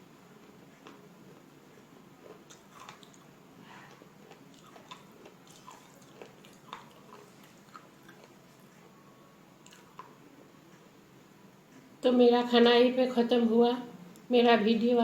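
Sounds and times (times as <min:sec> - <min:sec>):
person chewing crunchy slate: 0:00.8 - 0:08.6.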